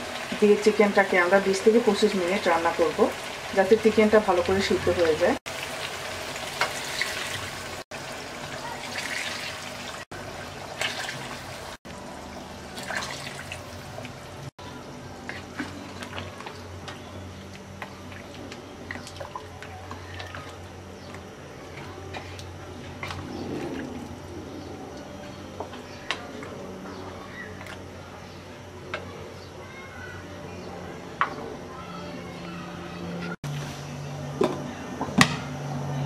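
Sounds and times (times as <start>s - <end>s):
water pouring and splashing: 1.9s - 14.5s, 15.2s - 16.7s, 18.0s - 20.8s.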